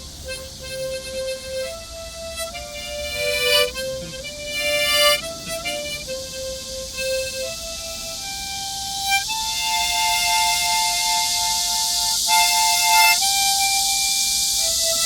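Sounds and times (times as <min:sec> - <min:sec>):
cicadas droning: 0:00.0 - 0:15.0
harmonica playing slow melody: 0:00.0 - 0:15.0.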